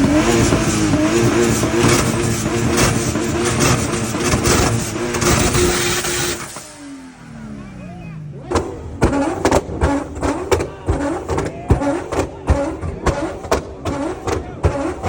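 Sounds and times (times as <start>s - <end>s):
harsh rough noise: 0.0s - 7.7s
car engine revving: 0.0s - 15.0s.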